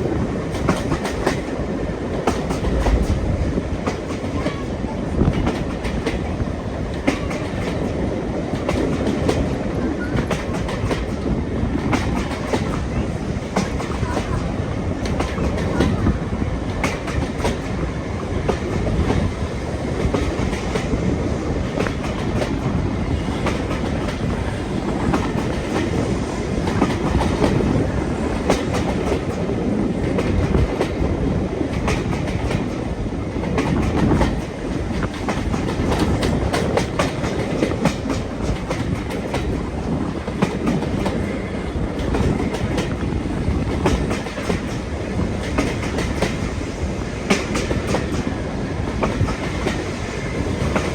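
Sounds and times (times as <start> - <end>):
train rumbling: 0.0 - 50.9
wheels clicking over rail joints: 18.4 - 50.9.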